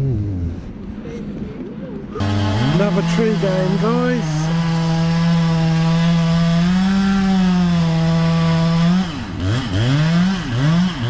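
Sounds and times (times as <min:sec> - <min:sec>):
chainsaw revving: 0:02.2 - 0:11.0.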